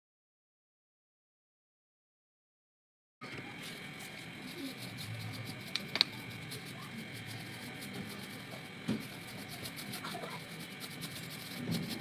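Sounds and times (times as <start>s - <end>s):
small sharp clicks and taps: 5.7s - 6.2s.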